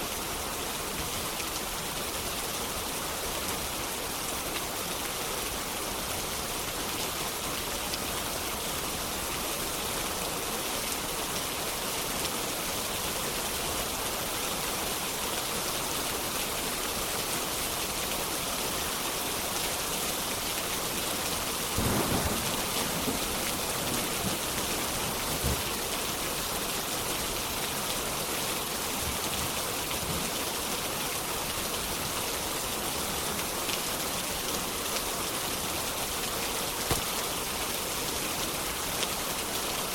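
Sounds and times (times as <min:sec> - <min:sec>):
heavy rain: 0:00.0 - 0:39.9
distant thunder rumble: 0:21.8 - 0:25.7.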